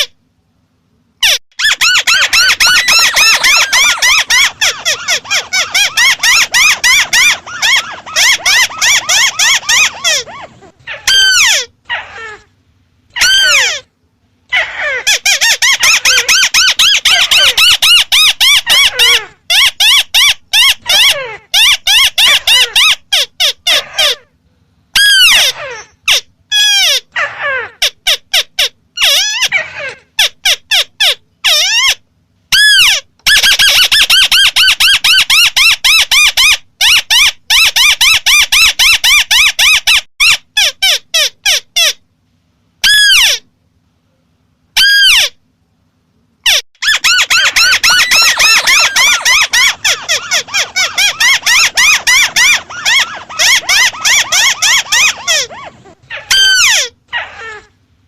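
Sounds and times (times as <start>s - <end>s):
bird calling nasal notes: 1.2s - 12.4s, 46.5s - 57.7s.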